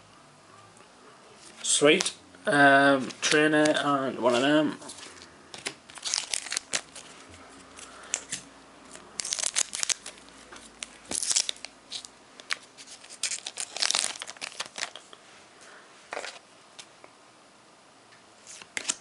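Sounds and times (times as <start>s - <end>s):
foil wrapper crinkling and tearing: 5.6s - 7.1s, 9.2s - 15.0s.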